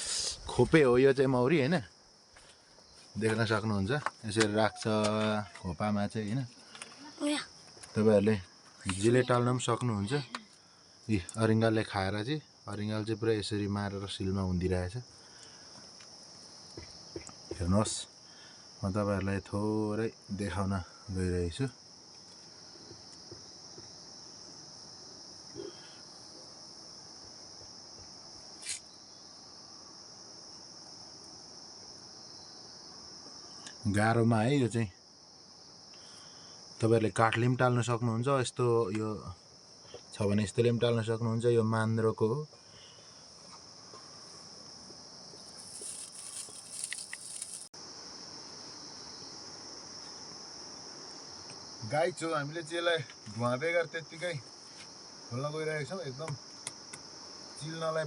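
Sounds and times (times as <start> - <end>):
insects chirping: 0.0 - 58.0
rustling and scraping: 43.4 - 47.8.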